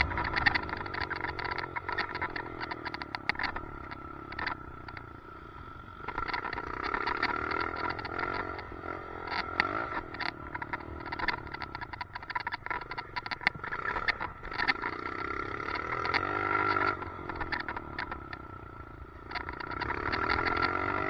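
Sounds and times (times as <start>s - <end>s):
helmet mount rattling clicks: 0.0s - 5.1s, 9.3s - 14.9s
dirt bike engine revving: 0.0s - 11.7s, 12.7s - 21.0s.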